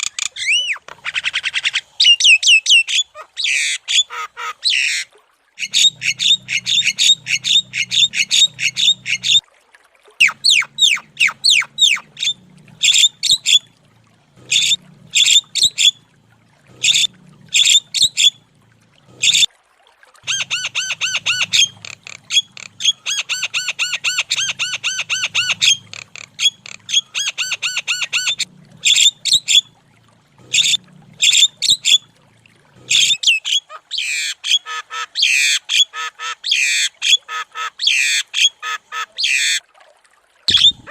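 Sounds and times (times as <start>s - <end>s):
bird squawking and chattering: 0.0s - 5.0s, 5.6s - 9.4s, 10.2s - 13.6s, 14.4s - 16.0s, 16.7s - 18.4s, 19.2s - 19.5s, 20.2s - 29.7s, 30.4s - 32.0s, 32.8s - 39.6s, 40.5s - 40.9s
faint low hum: 10.2s - 19.5s, 20.3s - 33.1s.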